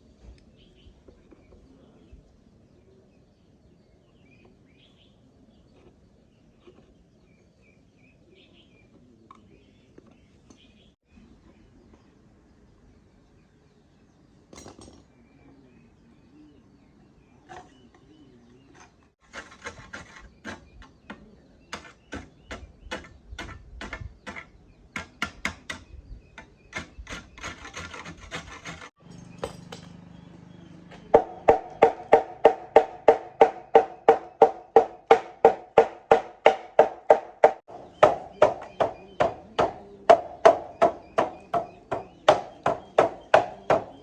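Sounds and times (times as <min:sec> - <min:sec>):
hammer striking metal: 0:29.0 - 0:30.1.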